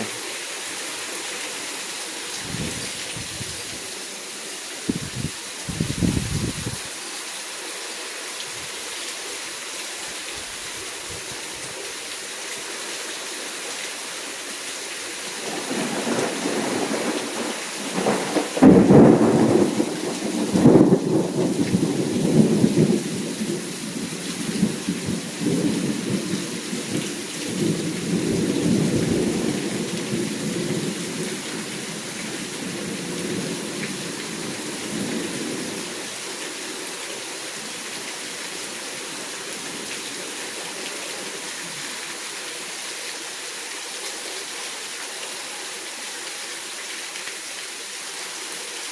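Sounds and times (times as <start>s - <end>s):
steady rain: 0.0s - 48.9s
thunder rumbling and cracking: 15.4s - 23.6s.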